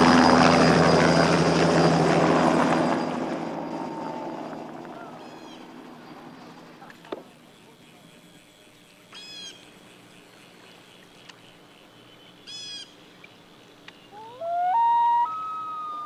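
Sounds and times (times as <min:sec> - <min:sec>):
harsh bird calls: 0:13.9 - 0:16.0
loud rising wailing call: 0:14.1 - 0:16.0.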